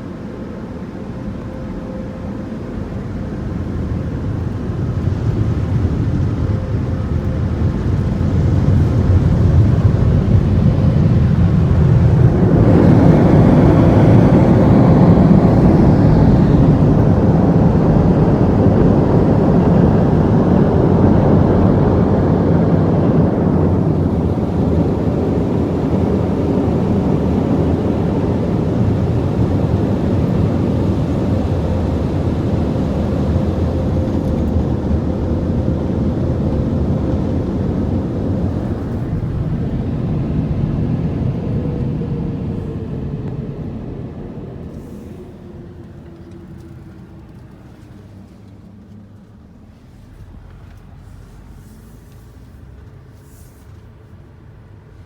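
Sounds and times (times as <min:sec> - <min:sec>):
air dryers blowing: 0:00.0 - 0:48.9.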